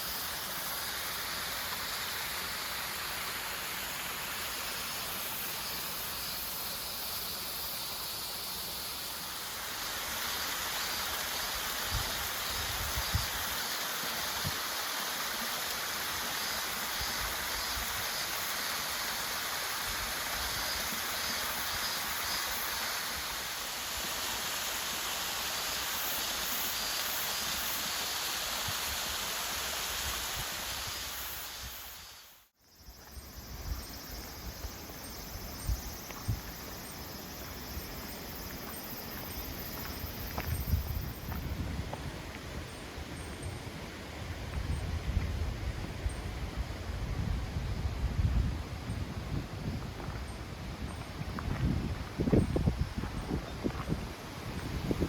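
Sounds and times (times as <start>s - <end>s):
rushing water: 0.0s - 32.3s
wind thumps on microphone: 47.0s - 55.0s.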